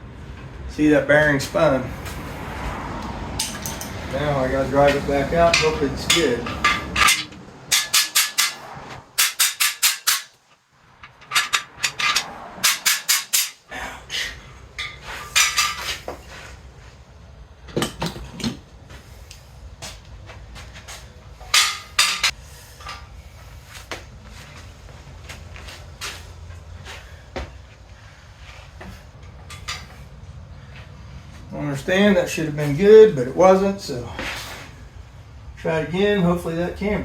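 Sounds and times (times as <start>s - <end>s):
hammer striking metal: 3.4s - 4.0s, 4.9s - 10.4s, 11.0s - 13.7s, 21.4s - 22.4s.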